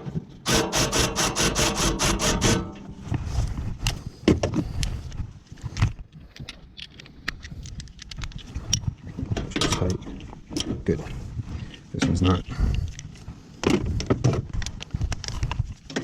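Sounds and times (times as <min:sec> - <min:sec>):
power tool clicking: 0:00.5 - 0:03.0
tools and parts being handled: 0:05.6 - 0:10.9.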